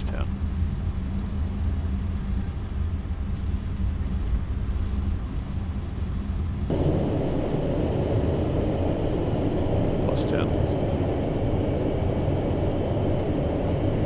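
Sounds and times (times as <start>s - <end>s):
jet engine and airflow rumble: 0.0s - 14.0s
loud hiss with high whine: 6.7s - 14.0s.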